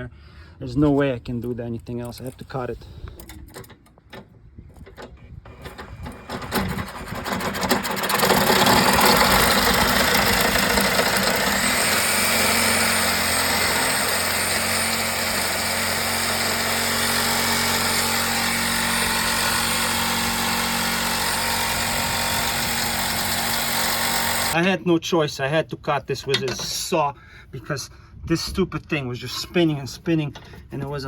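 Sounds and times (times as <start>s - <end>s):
power saw cutting metal: 5.5s - 24.6s.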